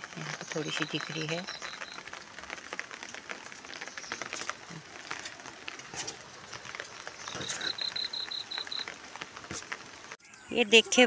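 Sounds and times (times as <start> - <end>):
rain on plants: 0.0 - 11.0
bird trilling high notes: 7.3 - 8.9.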